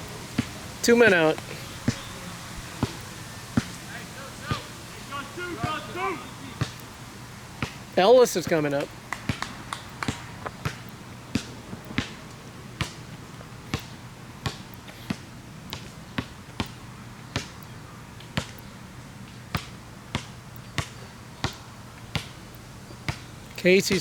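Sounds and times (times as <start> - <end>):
steady low hum: 0.0 - 16.1.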